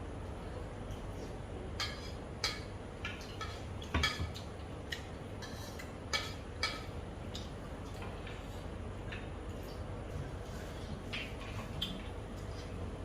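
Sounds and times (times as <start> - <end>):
utensil clinking against a bowl: 1.8 - 8.4.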